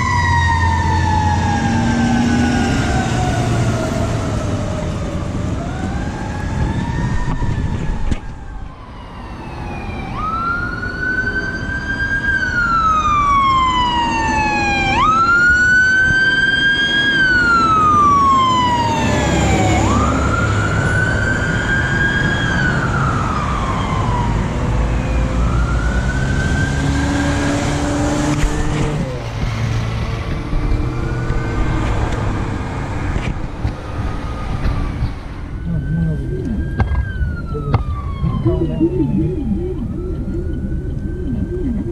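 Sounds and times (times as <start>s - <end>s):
fire truck siren wailing: 0.0s - 41.9s
low truck engine rumble: 29.0s - 41.9s.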